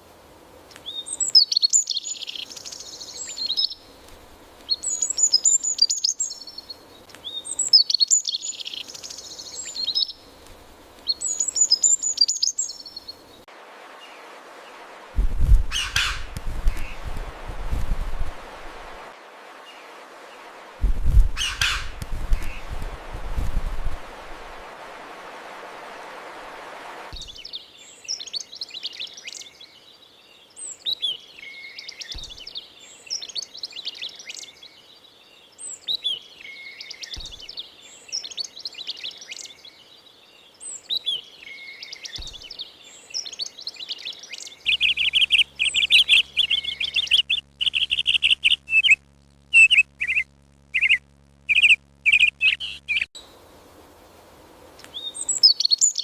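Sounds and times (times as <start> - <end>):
songbirds chirping: 0.4 - 20.7, 21.3 - 22.9, 26.5 - 56.0
soft rushing noise: 13.5 - 27.2.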